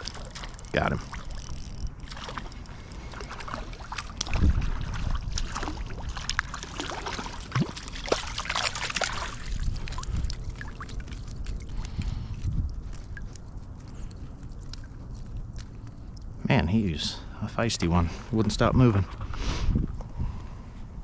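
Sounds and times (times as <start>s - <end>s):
water splashing and sloshing: 0.0s - 16.6s.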